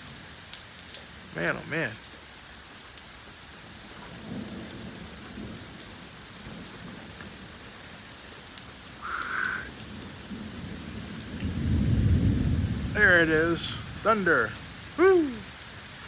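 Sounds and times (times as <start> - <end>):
heavy rain: 0.0 - 16.0
thunder rumbling: 9.0 - 15.5.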